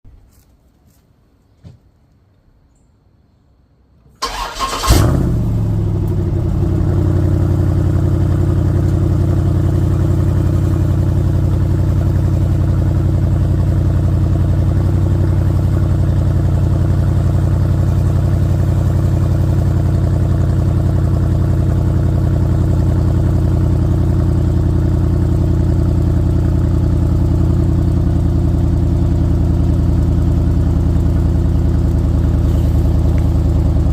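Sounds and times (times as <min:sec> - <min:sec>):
car engine cold start and idle: 0:04.1 - 0:33.9.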